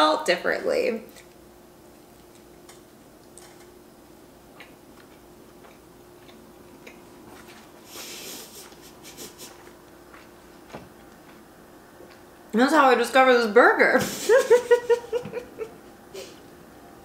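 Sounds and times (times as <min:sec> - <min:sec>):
wet chewing with mouth clicks: 0:01.1 - 0:03.8, 0:04.4 - 0:11.4.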